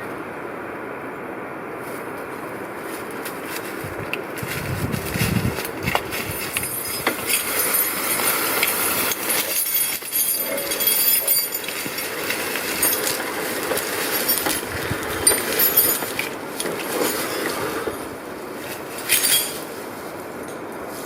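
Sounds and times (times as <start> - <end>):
metal chains clinking and rattling: 4.4 - 19.8.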